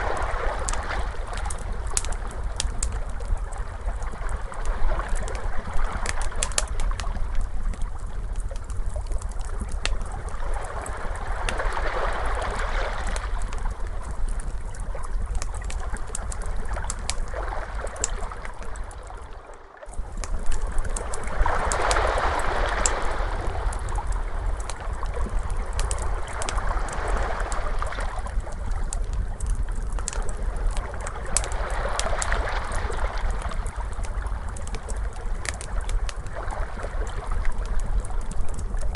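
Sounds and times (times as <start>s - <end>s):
wood fire crackling and popping: 0.0s - 38.9s
ocean waves washing: 17.2s - 28.5s.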